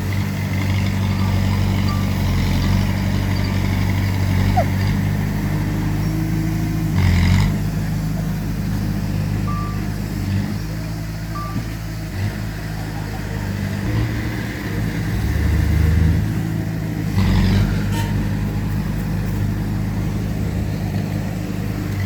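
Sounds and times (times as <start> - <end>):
heavy diesel engines revving: 0.0 - 22.0
reversing beep: 1.1 - 3.8, 9.5 - 9.9, 11.3 - 11.8.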